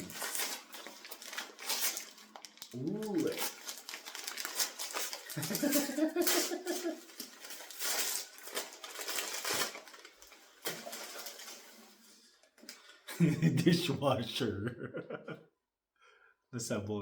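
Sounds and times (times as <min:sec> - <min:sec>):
wrapping paper rustling: 0:00.0 - 0:12.3.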